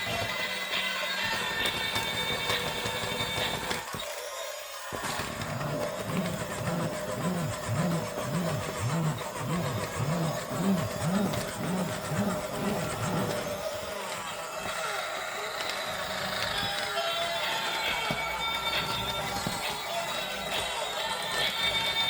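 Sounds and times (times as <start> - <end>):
engine cranking: 0.0 - 22.0.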